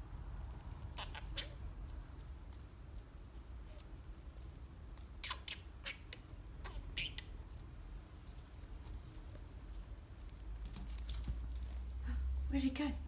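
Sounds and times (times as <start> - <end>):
budgerigar chirping: 1.0 - 1.6, 5.2 - 7.4.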